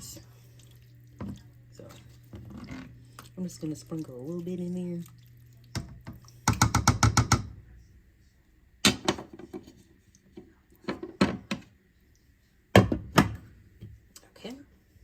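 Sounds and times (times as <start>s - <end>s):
kitchenware knocking: 6.5s - 7.5s.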